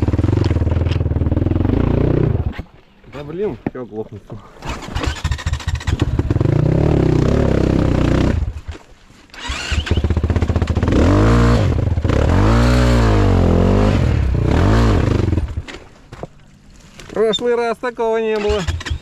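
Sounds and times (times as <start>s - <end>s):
dirt bike engine revving: 0.0s - 2.6s, 4.6s - 8.6s, 9.3s - 15.7s, 18.4s - 19.0s.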